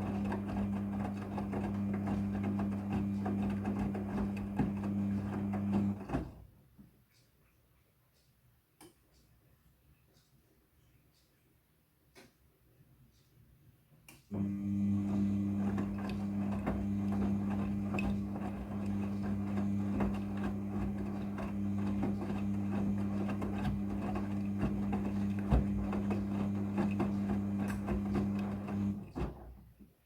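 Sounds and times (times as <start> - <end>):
washing machine humming: 0.0 - 6.5, 14.3 - 29.7.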